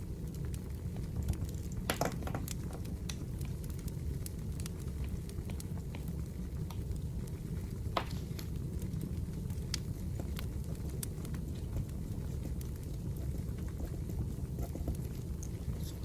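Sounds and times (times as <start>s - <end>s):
firewood crackling and popping: 0.0s - 16.0s.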